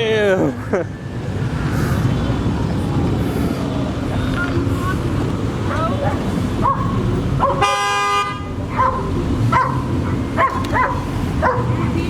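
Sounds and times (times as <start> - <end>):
car horn honk: 7.6 - 8.6.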